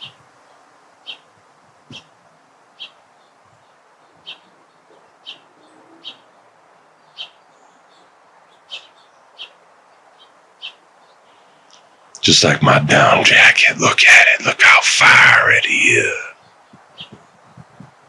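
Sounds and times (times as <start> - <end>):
faint outdoor background: 6.2 - 16.4.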